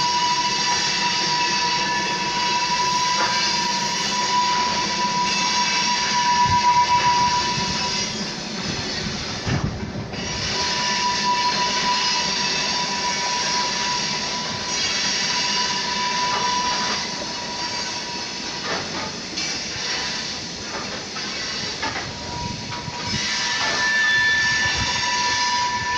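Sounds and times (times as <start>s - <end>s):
high-pitched squeak: 21.2s - 25.9s.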